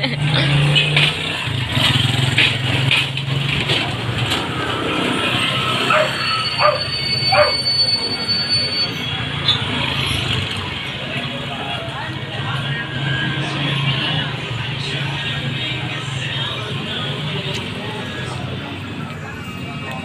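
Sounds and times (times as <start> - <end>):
vehicle engine hum: 0.0 - 20.0
high-pitched squeal: 4.4 - 10.4.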